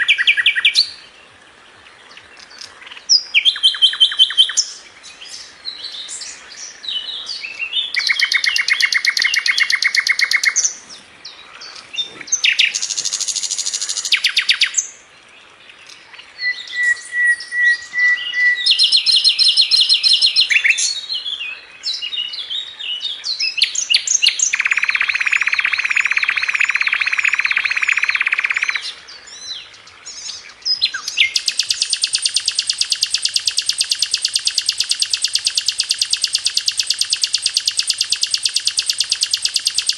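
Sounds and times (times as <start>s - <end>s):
bird chirps: 0.0s - 1.2s, 2.1s - 15.0s, 15.8s - 39.9s
bird singing rapid trills: 2.1s - 15.0s, 15.8s - 39.9s
whistled bird note: 16.4s - 20.8s.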